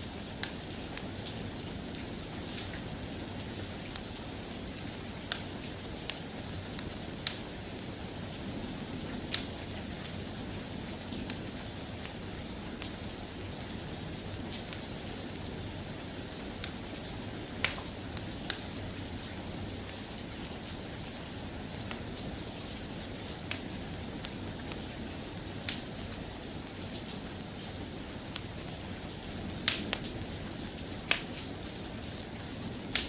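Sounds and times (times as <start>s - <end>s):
soft steady rain: 0.0s - 33.0s
single raindrop clicks: 29.7s - 30.1s.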